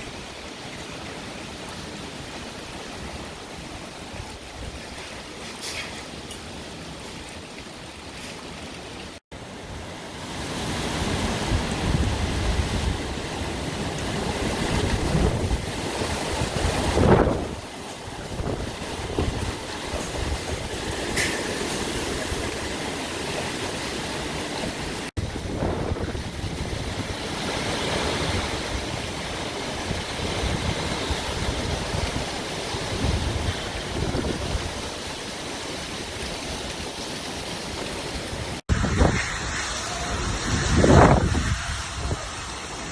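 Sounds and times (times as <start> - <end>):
wind buffeting microphone: 9.7 - 42.9.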